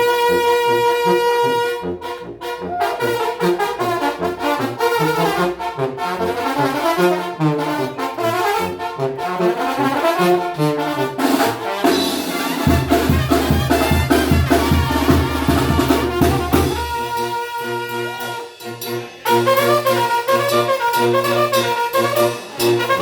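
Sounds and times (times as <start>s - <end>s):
brass band playing: 0.0s - 23.0s
rapid drum strokes: 11.8s - 17.1s.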